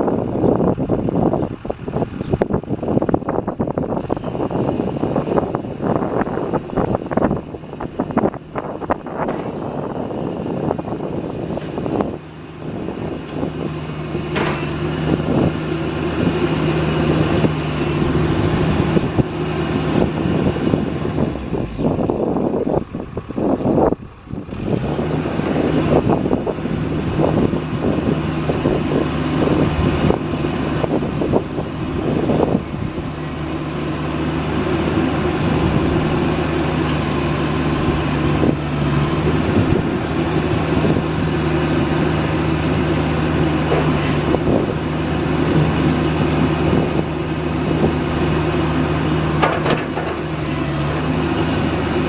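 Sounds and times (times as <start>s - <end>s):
excavator diesel engine idling: 0.0s - 52.0s
clunks and knocks: 9.2s - 9.7s, 14.3s - 14.8s, 43.6s - 44.4s, 49.3s - 50.5s.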